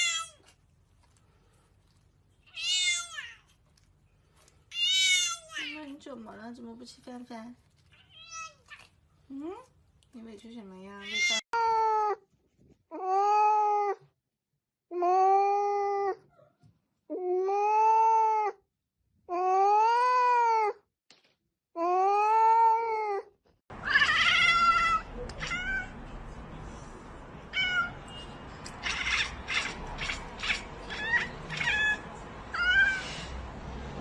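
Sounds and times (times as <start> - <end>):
cat meowing: 2.5 - 3.5, 4.7 - 5.7, 23.8 - 26.0, 27.5 - 28.0, 28.7 - 33.3.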